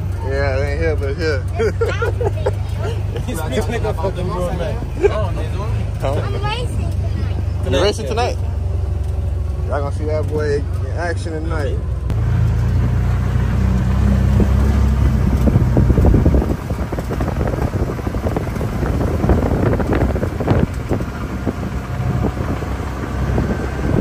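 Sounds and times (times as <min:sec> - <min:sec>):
engine humming: 0:00.0 - 0:24.0
wind buffeting microphone: 0:13.9 - 0:24.0.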